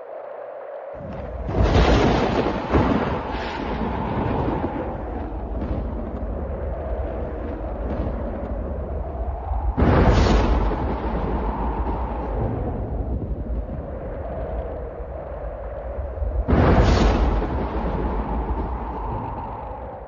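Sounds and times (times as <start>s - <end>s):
storm wind: 0.0s - 20.0s
rolling rumble of thunder: 1.0s - 20.0s
thunderclap: 1.0s - 20.0s.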